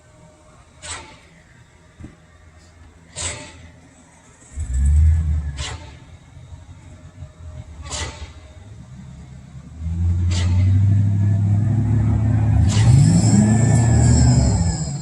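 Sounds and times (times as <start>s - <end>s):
diesel truck engine revving: 4.4s - 6.4s, 7.7s - 15.0s.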